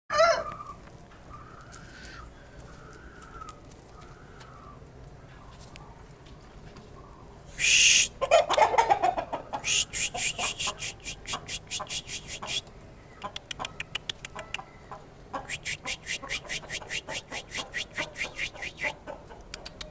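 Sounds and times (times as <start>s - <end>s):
chickens clucking: 0.1s - 19.9s
rapid sharp ticks: 19.4s - 19.9s.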